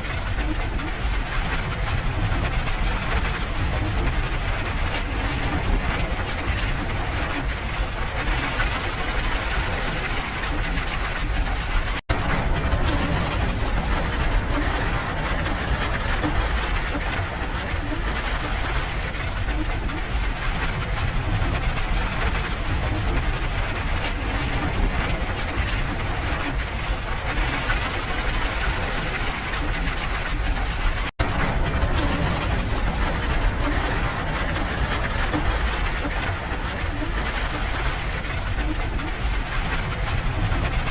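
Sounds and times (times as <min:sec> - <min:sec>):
deep rumble: 0:00.0 - 0:40.9
steady rain hiss: 0:12.1 - 0:18.7, 0:31.2 - 0:40.9.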